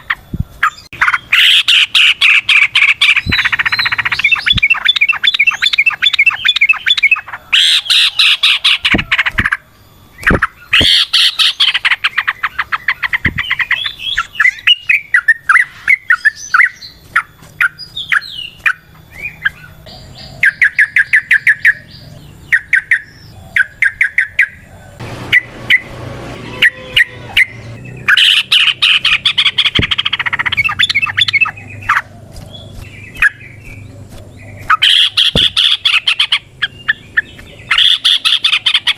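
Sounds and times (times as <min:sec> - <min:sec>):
bird singing chattering notes: 0:00.0 - 0:38.9.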